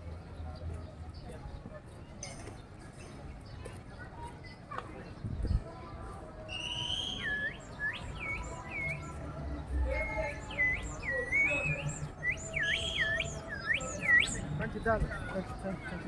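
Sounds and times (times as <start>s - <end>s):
birds chirping whistled notes: 6.5s - 9.2s, 10.0s - 14.6s.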